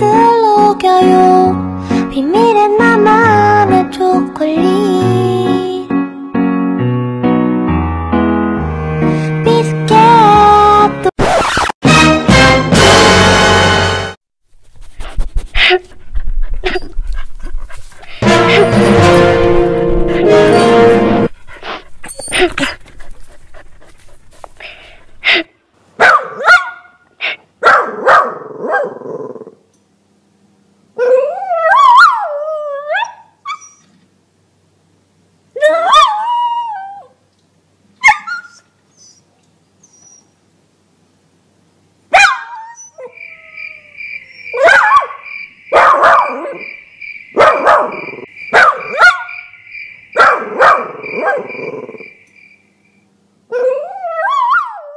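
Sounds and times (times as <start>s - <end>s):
puppy whining: 15.6s - 19.2s, 21.4s - 25.2s, 31.1s - 34.0s, 38.0s - 40.4s, 42.5s - 44.8s
puppy barking and yelping: 16.4s - 19.0s, 26.0s - 27.0s, 31.0s - 34.0s, 35.6s - 37.1s, 38.0s - 40.3s, 42.1s - 45.2s, 45.8s - 46.6s, 47.4s - 49.4s, 50.2s - 52.0s.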